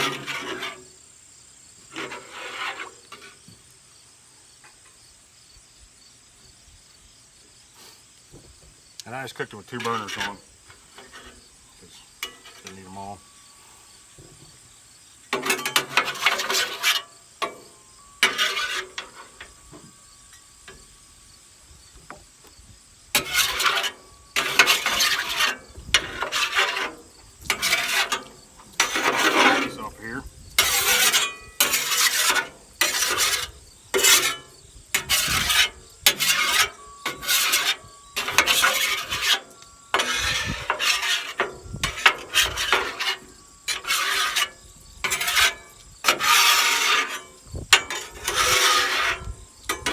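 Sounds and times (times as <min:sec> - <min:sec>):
metal spatula scraping griddle: 0:00.0 - 0:01.0, 0:01.8 - 0:03.6, 0:09.2 - 0:13.5, 0:15.3 - 0:20.9, 0:23.1 - 0:49.9.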